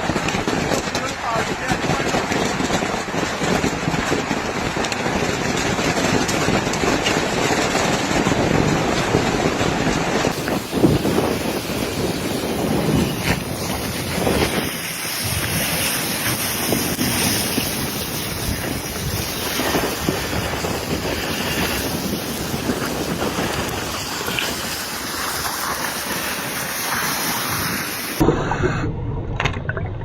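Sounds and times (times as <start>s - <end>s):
open water washing: 0.0s - 28.3s
wind buffeting microphone: 0.0s - 29.0s.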